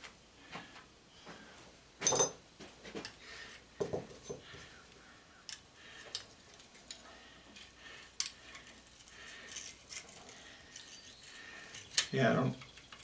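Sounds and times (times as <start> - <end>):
metal tools clicking and clinking: 2.0 - 2.4.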